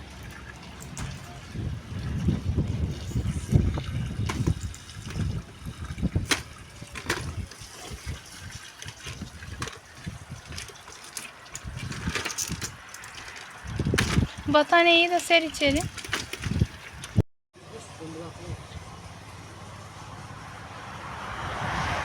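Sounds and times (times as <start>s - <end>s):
water trickling and splashing: 0.0s - 17.2s
knocks and clatter of handling: 0.3s - 1.4s, 4.3s - 5.6s, 6.2s - 8.2s, 8.8s - 14.5s, 15.2s - 17.2s.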